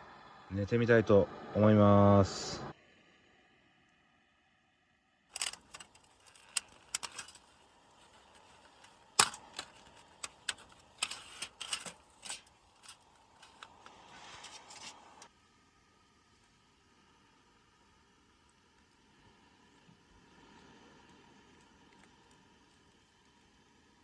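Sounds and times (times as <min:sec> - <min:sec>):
sharp clicks of gear: 0:05.3 - 0:14.0
rustling of camping gear: 0:05.3 - 0:15.3.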